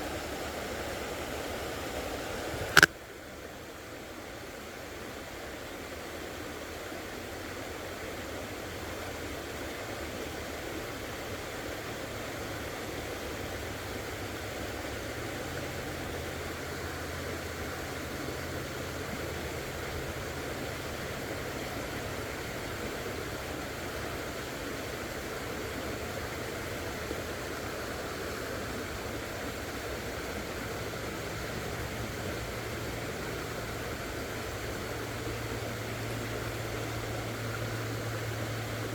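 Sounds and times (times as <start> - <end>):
creek water rushing: 0.0 - 38.9
low steady hum: 11.7 - 38.9.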